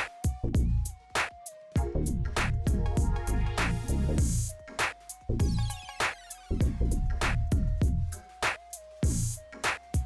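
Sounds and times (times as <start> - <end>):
electronic dance music: 2.6 - 6.8.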